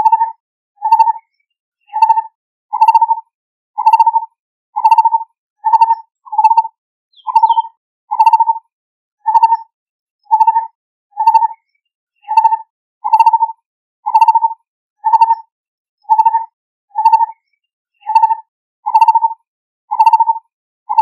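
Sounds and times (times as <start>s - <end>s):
barbet calling: 5.7s - 8.5s, 19.9s - 20.3s.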